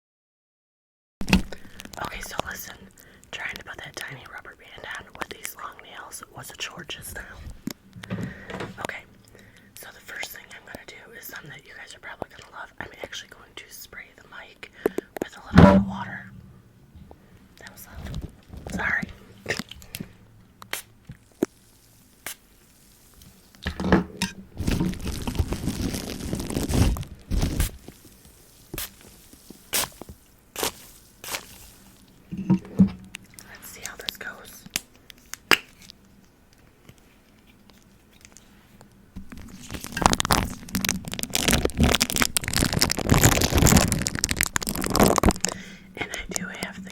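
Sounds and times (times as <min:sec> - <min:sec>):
wet plastic crinkling: 0:01.2 - 0:04.1, 0:17.6 - 0:23.7, 0:24.6 - 0:32.4, 0:33.0 - 0:46.9
plastic wrap clicks: 0:39.3 - 0:45.6.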